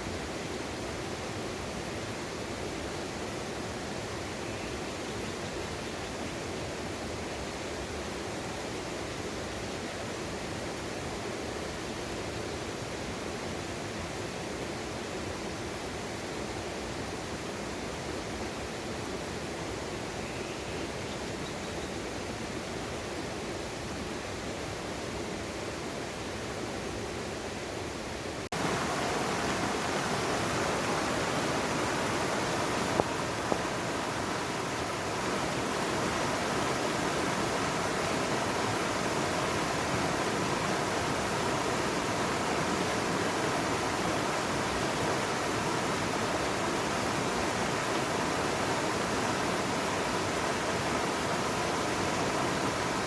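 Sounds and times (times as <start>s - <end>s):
stream water rushing: 26.2s - 53.0s.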